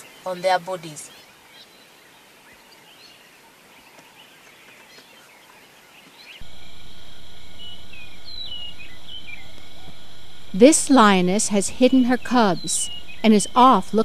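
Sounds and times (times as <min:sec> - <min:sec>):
faint bird chirps: 0:06.4 - 0:10.5
steady hum: 0:06.4 - 0:14.0.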